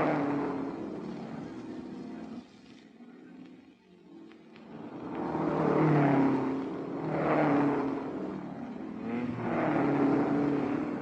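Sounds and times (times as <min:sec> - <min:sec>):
racing cars passing: 0:00.0 - 0:02.3, 0:04.6 - 0:11.0.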